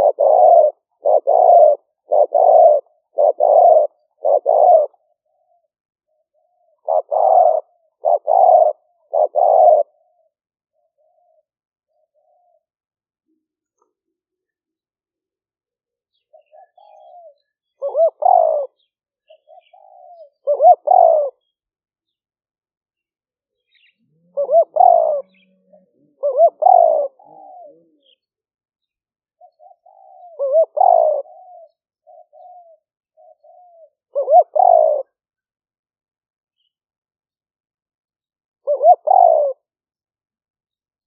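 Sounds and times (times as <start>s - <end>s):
dove cooing: 0.0s - 12.8s, 16.1s - 21.5s, 23.6s - 28.3s, 29.4s - 35.2s, 38.6s - 39.7s.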